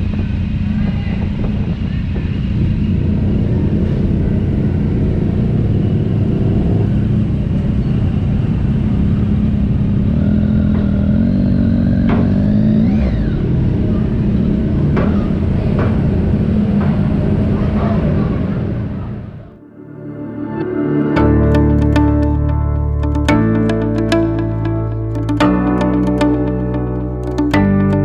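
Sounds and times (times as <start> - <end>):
wind and road noise: 0.0 - 19.5
motorcycle engine revving: 0.5 - 16.7.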